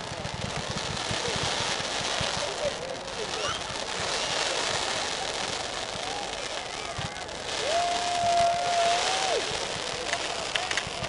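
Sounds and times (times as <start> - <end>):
crowd talking: 0.0 - 11.0
fireworks crackling: 0.0 - 11.0.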